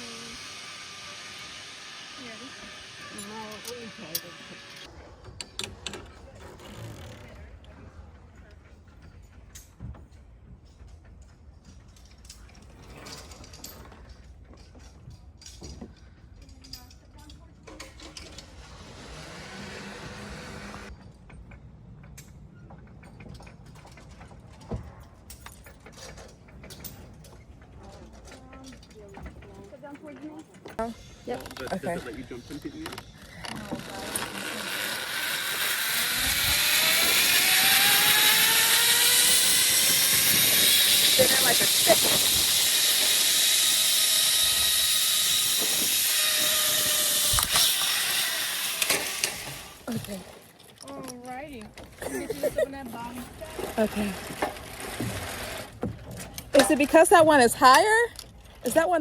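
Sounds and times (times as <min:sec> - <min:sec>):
zip line trolley whirring on cable: 0:00.0 - 0:07.5, 0:17.7 - 0:24.6, 0:25.2 - 0:50.5, 0:51.8 - 0:59.0.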